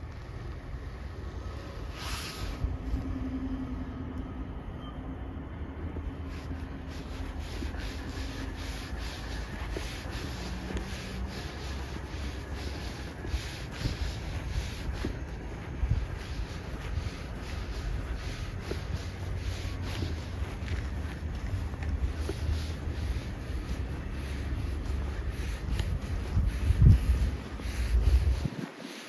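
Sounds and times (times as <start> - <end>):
traffic rumble: 0.0 - 28.6
wind: 0.0 - 29.0
footsteps crunching through snow: 6.2 - 29.0.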